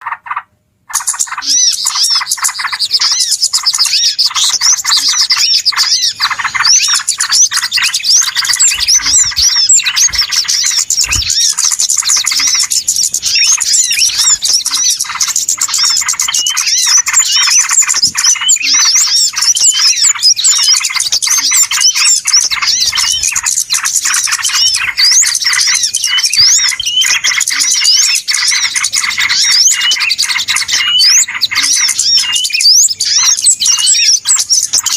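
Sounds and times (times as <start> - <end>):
small birds chirping in chorus: 0.0 - 34.9.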